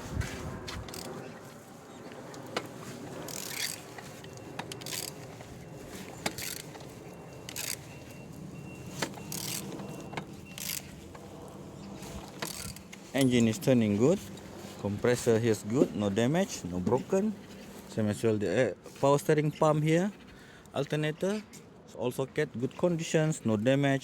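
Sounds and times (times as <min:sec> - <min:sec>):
crankshaft turned with wrench: 0:03.3 - 0:03.8, 0:04.8 - 0:05.2, 0:06.2 - 0:06.8, 0:07.5 - 0:07.9, 0:09.0 - 0:09.8, 0:10.4 - 0:10.9, 0:12.4 - 0:13.4.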